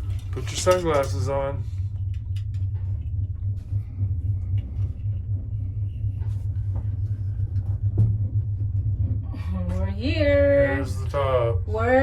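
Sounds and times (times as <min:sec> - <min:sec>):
gondola cabin rumble: 0:00.0 - 0:12.0.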